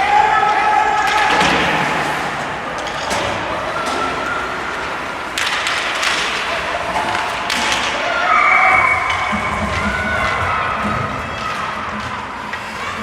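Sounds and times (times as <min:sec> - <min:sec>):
rink and crowd din: 0:00.0 - 0:13.0
puck and sticks knocking boards: 0:00.8 - 0:13.0.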